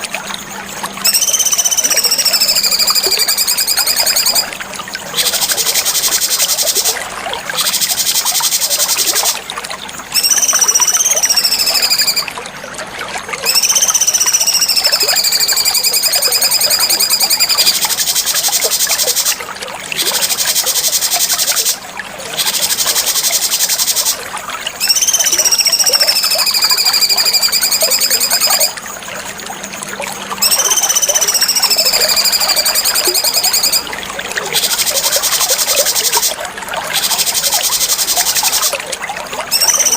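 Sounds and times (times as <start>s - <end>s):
high-pitched chattering bird trills: 1.0s - 4.5s, 5.1s - 7.0s, 7.6s - 9.4s, 10.1s - 12.3s, 13.4s - 19.4s, 20.0s - 28.8s, 30.4s - 38.8s, 39.5s - 39.9s
bird whistles sliding downward: 1.0s - 7.0s, 7.6s - 9.4s, 10.1s - 12.3s, 13.4s - 19.4s, 22.4s - 24.2s, 24.8s - 28.8s, 30.3s - 33.9s, 34.5s - 38.8s, 39.5s - 39.9s.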